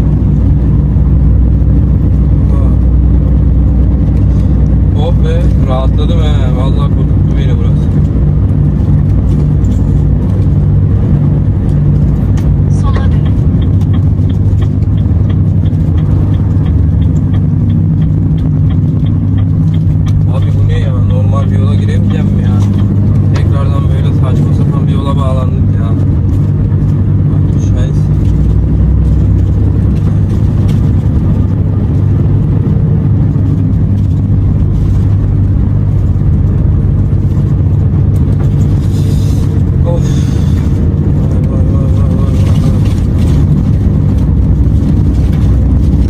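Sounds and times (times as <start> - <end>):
truck diesel engine droning: 0.0 - 46.0
light regular ticking: 1.2 - 46.0.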